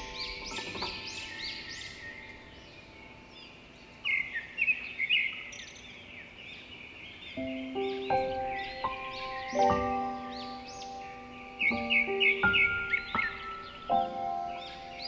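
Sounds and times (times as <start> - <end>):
birds singing: 0.0 - 15.0.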